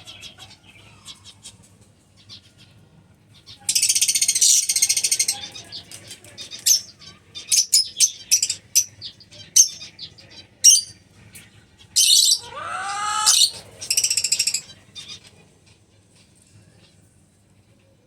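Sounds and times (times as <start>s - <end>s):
lovebirds chirping: 3.4s - 15.3s
harsh gliding bird call: 12.0s - 14.7s.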